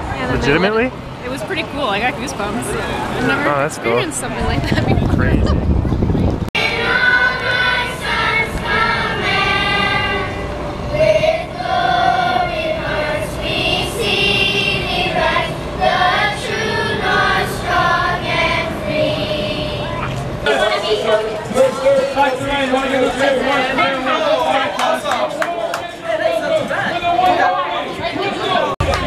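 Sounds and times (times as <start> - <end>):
choir singing long notes: 6.6 - 21.0.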